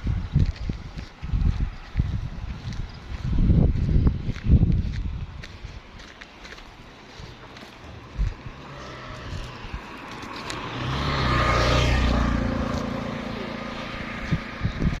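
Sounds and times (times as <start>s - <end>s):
vehicle engine passing by: 7.0s - 15.0s.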